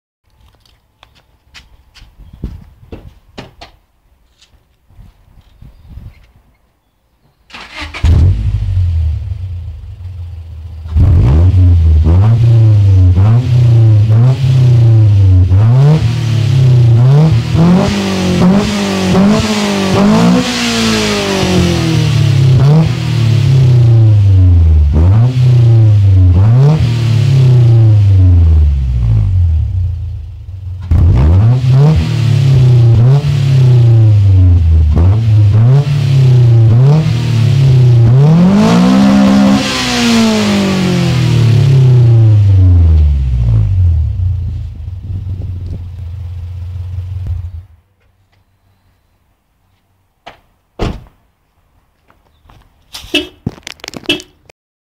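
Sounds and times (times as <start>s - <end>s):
car engine revving: 7.6s - 47.7s.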